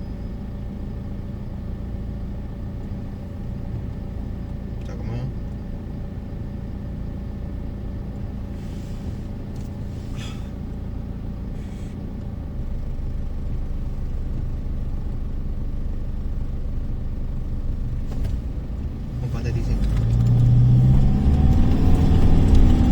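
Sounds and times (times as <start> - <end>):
car road and engine rumble: 0.0 - 22.9
short hisses: 8.5 - 10.6, 11.5 - 12.0.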